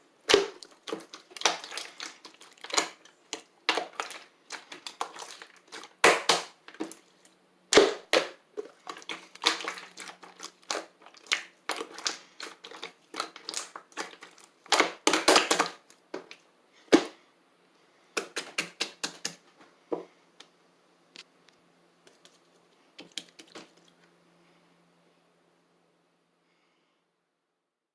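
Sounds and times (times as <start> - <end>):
slime squeezed crackling popping: 0.2 - 7.0, 7.7 - 15.9.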